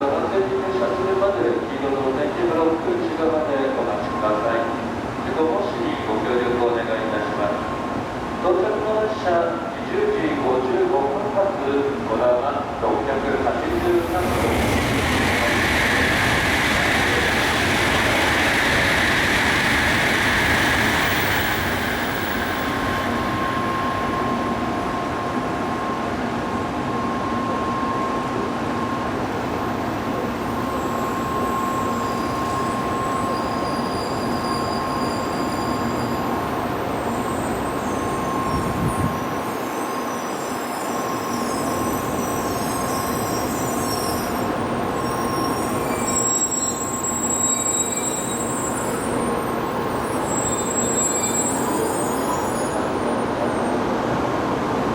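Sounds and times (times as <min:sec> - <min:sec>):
train brakes hissing: 0:13.7 - 0:24.6, 0:30.2 - 0:53.8.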